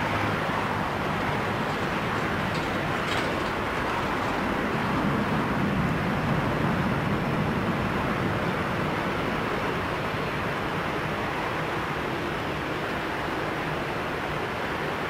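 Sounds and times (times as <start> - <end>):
aircraft engine rumble: 0.0 - 7.9.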